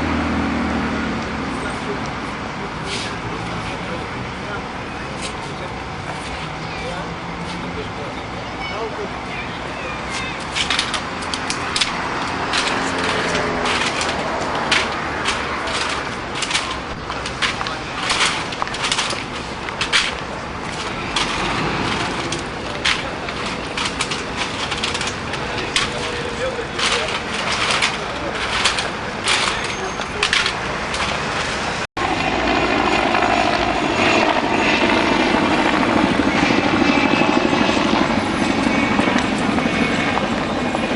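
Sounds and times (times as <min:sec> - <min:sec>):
street noise rush: 0:00.0 - 0:40.9
sharp clicks and knocks: 0:10.4 - 0:31.5.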